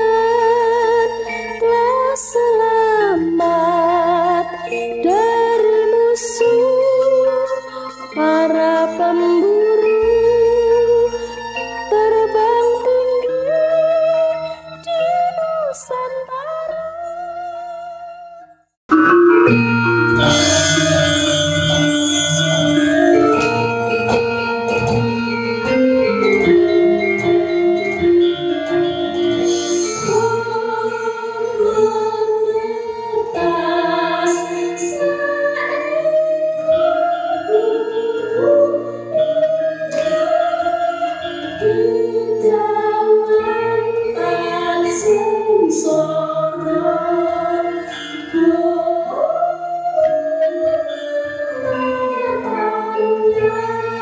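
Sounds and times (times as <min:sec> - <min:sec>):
gamelan music: 0:00.0 - 0:18.3, 0:18.9 - 0:54.0
voices singing long sliding notes: 0:28.8 - 0:54.0.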